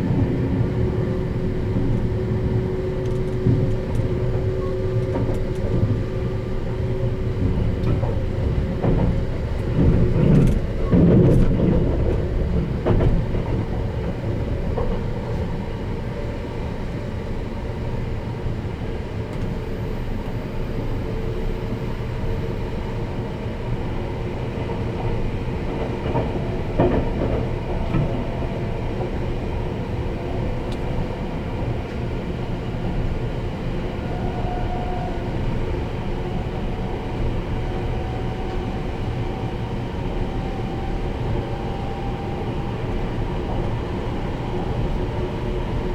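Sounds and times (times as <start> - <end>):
train rumbling: 0.0 - 45.9
track knocks: 3.0 - 15.5.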